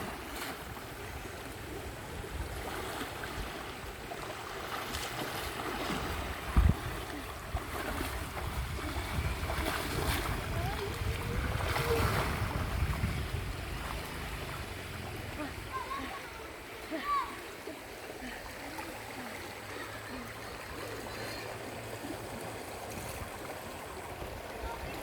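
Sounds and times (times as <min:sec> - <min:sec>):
rushing outdoor noise: 0:00.0 - 0:25.0
wind buffeting microphone: 0:05.9 - 0:16.0.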